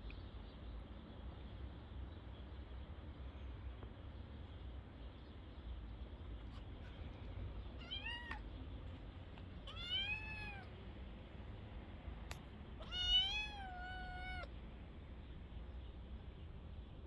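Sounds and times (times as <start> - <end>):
kitten meowing: 7.8 - 8.4, 9.6 - 10.7, 12.8 - 14.5.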